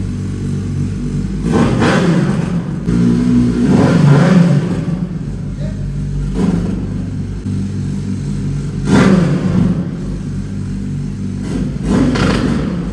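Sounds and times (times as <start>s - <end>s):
motorcycle engine idling and revving: 0.0s - 12.9s.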